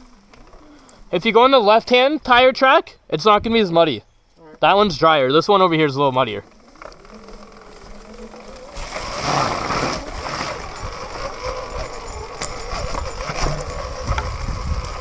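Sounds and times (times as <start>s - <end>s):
tyre chain and rattle noise: 5.7s - 15.0s
electric motor whine: 6.5s - 15.0s.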